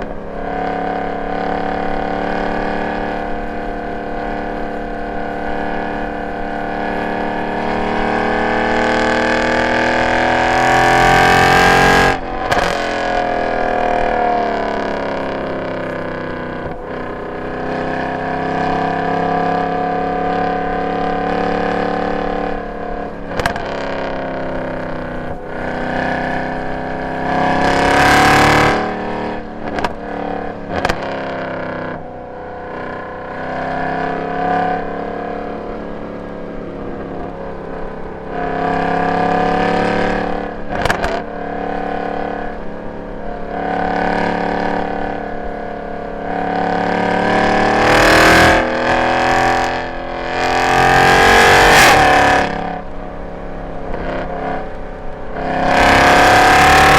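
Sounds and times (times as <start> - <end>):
car engine revving: 0.0 - 56.9
exhaust cracks: 22.8 - 24.3, 28.7 - 31.2, 39.7 - 41.4.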